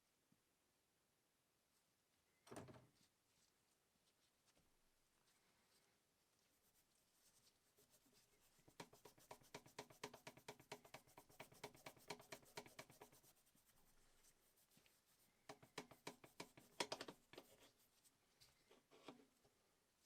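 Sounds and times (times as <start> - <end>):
rapid rhythmic scratching: 7.8 - 17.5.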